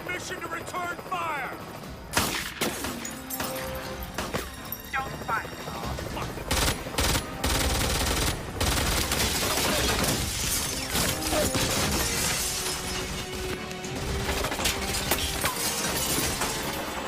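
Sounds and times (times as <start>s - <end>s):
dramatic action music: 0.0s - 17.0s
debris crashing: 9.2s - 17.0s
glass shattering: 9.7s - 13.3s, 14.6s - 17.0s.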